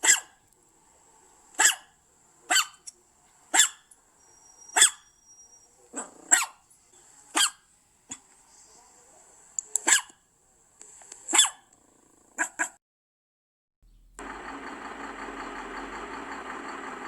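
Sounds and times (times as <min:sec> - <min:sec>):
dog barking: 0:00.0 - 0:00.4, 0:01.6 - 0:02.9, 0:03.5 - 0:03.9, 0:04.7 - 0:05.2, 0:05.9 - 0:06.6, 0:07.3 - 0:08.2, 0:09.8 - 0:10.2, 0:11.3 - 0:11.7, 0:12.4 - 0:12.8.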